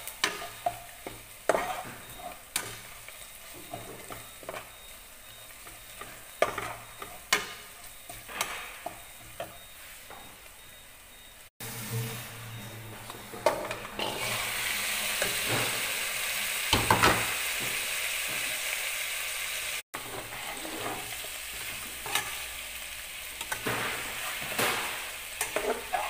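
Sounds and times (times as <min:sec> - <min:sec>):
food sizzling in a pot: 0:00.0 - 0:26.0
metal spatula clinking on pot: 0:00.2 - 0:02.9, 0:05.6 - 0:09.6, 0:25.4 - 0:26.0.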